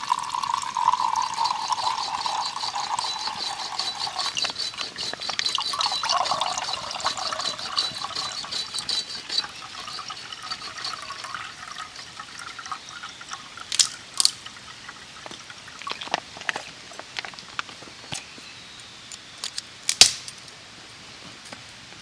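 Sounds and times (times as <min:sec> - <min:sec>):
water pouring into vessel: 0:00.0 - 0:16.8.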